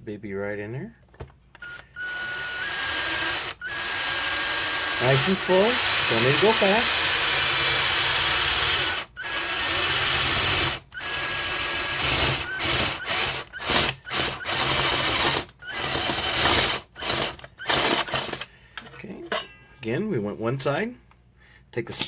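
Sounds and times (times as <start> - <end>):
power drill boring through metal: 1.6 - 18.5.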